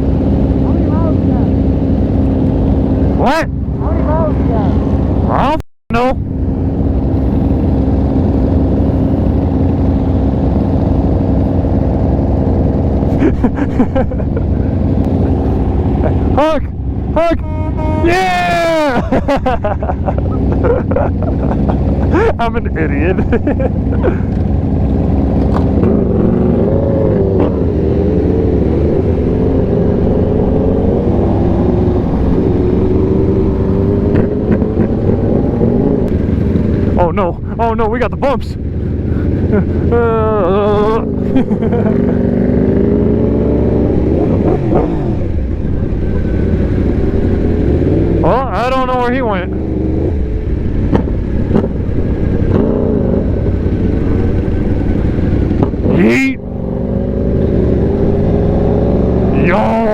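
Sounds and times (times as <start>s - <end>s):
motorcycle engine running: 0.0s - 59.9s
person speaking: 15.2s - 19.2s, 20.3s - 23.4s, 39.8s - 41.3s, 55.8s - 56.4s, 59.3s - 59.9s.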